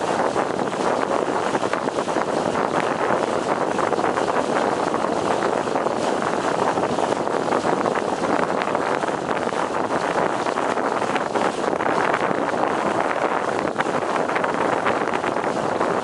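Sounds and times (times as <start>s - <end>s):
water splashing along boat hull: 0.0s - 16.0s.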